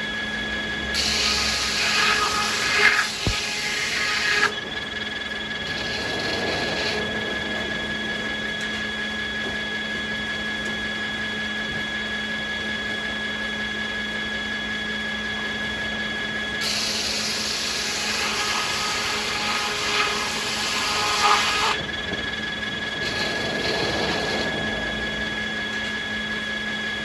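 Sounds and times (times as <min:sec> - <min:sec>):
sawmill saws whining: 0:00.0 - 0:27.0
saw cutting wood hissing: 0:01.0 - 0:04.7, 0:05.3 - 0:08.7, 0:16.6 - 0:26.2.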